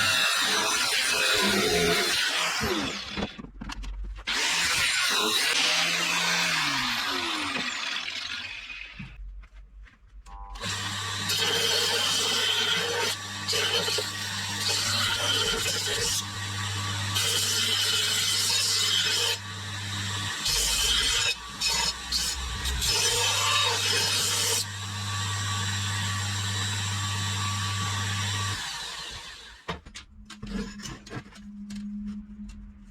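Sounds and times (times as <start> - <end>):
electric power tool running: 4.3 - 9.0, 10.6 - 29.7.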